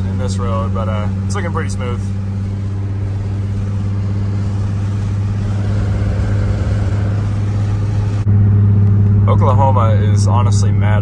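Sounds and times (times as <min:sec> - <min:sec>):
car engine droning: 0:00.0 - 0:11.0.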